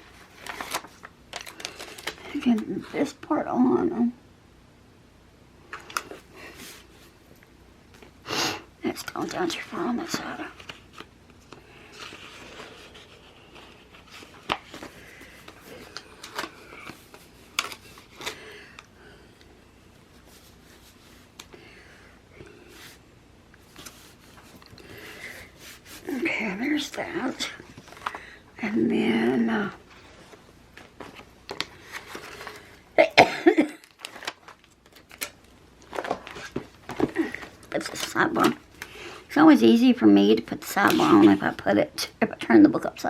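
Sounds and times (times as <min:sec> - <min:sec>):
paper sheets rustling and clicking: 0:00.0 - 0:03.2, 0:33.9 - 0:39.0
paper rustling and crinkling: 0:00.0 - 0:03.3, 0:08.9 - 0:18.8, 0:23.6 - 0:28.3, 0:29.8 - 0:32.8, 0:33.8 - 0:39.2.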